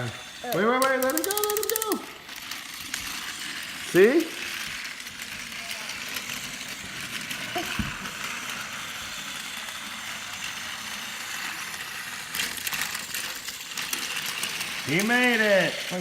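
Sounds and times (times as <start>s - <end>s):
toy train whirring: 0.0s - 16.0s
rattling clicks: 0.5s - 2.2s.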